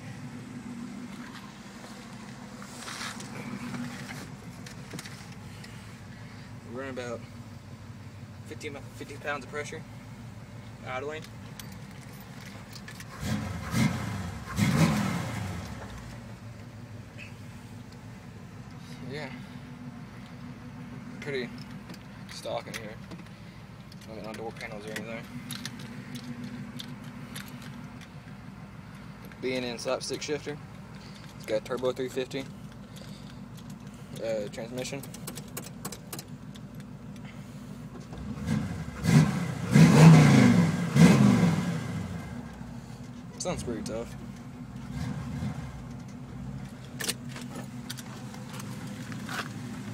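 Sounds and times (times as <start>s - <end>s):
car engine idling and revving: 0.0s - 49.9s.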